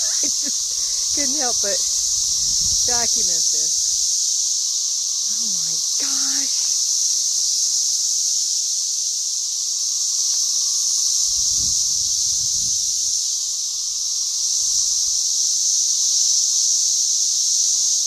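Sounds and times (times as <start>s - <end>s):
cicadas whining: 0.0s - 18.0s
low rumble: 0.5s - 4.2s.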